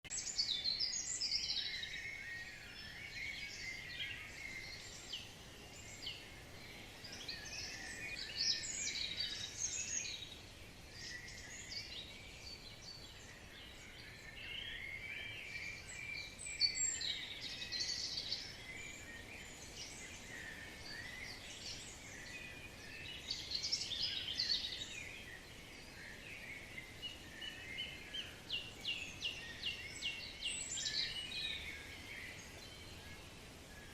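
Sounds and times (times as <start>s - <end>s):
birds chirping and trilling: 0.1s - 33.9s.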